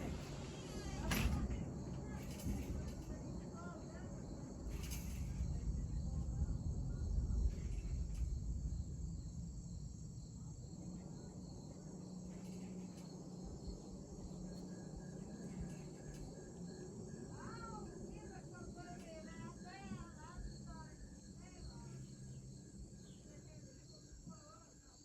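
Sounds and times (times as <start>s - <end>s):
distant thunder rumble: 0.0s - 12.8s
crickets and insects chirping: 0.0s - 25.0s.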